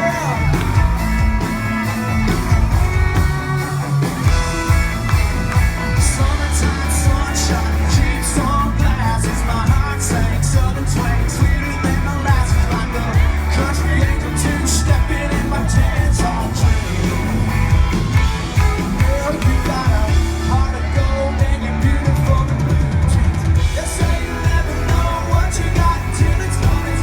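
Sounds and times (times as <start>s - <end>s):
man singing lead vocal: 0.0s - 0.9s, 6.0s - 17.8s, 18.8s - 27.0s
live country band playing: 0.0s - 27.0s.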